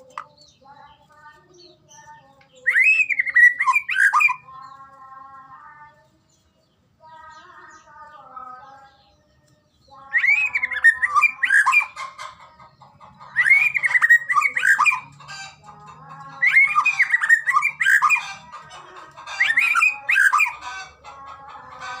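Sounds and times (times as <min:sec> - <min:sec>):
songbird whistling and warbling: 0:01.5 - 0:04.8, 0:09.8 - 0:12.2, 0:13.2 - 0:15.5, 0:16.3 - 0:18.5, 0:19.1 - 0:20.7.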